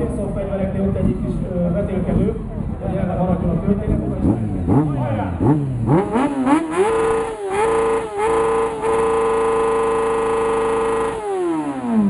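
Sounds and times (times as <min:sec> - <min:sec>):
motorcycle engine revving: 0:03.3 - 0:12.0.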